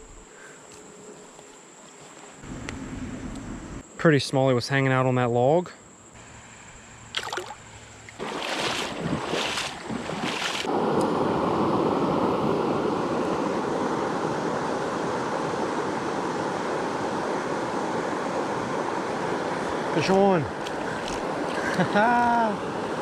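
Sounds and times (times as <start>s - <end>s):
creek water flowing: 7.1s - 10.8s, 13.0s - 23.0s.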